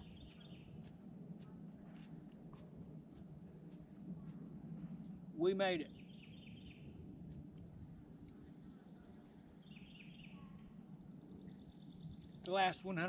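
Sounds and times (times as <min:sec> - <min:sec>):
low steady background noise: 0:00.0 - 0:13.0
faint high bird chirps: 0:08.4 - 0:12.7.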